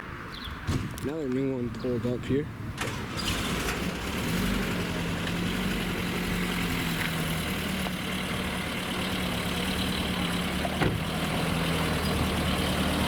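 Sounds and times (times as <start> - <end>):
car engine idling: 4.8 - 13.0.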